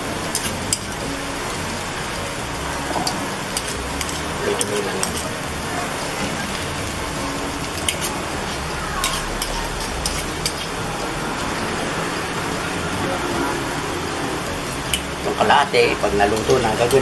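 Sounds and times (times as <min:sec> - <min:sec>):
food deep-frying in oil: 0:00.0 - 0:17.0
oil crackles and pops: 0:00.1 - 0:10.8.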